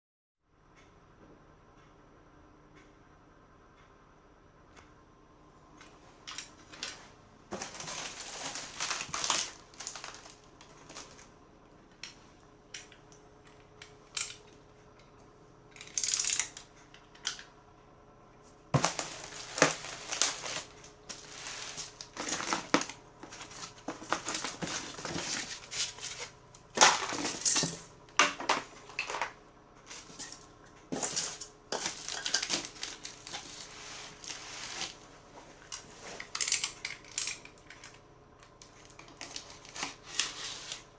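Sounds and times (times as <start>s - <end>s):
packaging crinkling and rustling: 6.3s - 11.3s, 18.8s - 38.0s, 38.6s - 40.9s.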